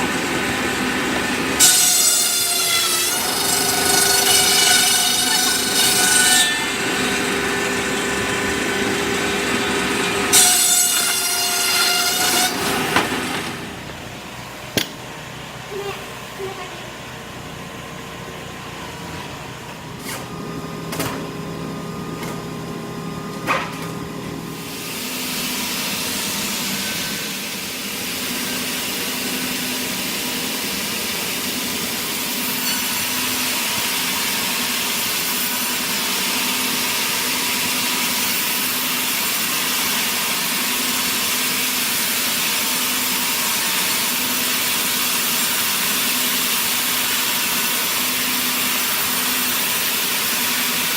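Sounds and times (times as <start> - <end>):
saw cutting through wood: 0.0 - 14.1, 24.5 - 50.9
sawmill machinery humming: 0.0 - 50.9.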